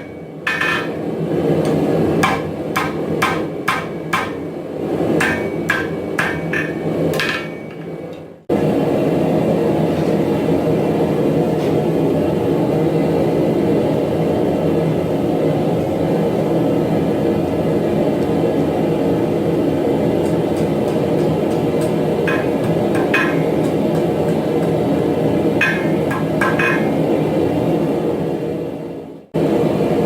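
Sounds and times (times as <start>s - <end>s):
hammer blows ringing on metal: 2.2s - 4.4s, 5.2s - 7.9s, 20.2s - 24.8s, 25.6s - 27.0s.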